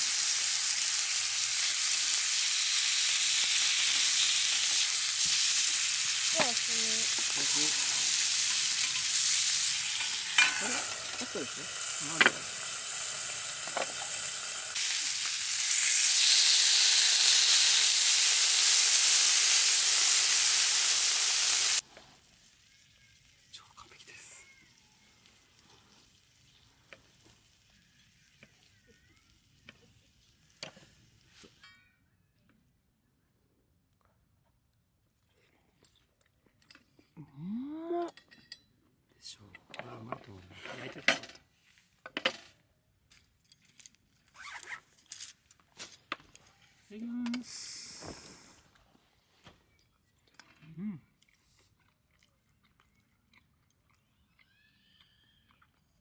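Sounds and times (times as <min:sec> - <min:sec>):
food sizzling in a pan: 0:00.0 - 0:31.6
tableware clinking: 0:09.8 - 0:11.6.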